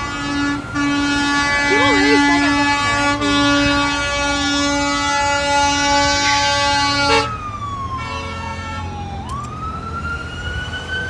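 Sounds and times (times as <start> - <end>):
air horn blaring: 0.0 - 7.4, 8.0 - 9.0
siren wailing: 0.7 - 11.0.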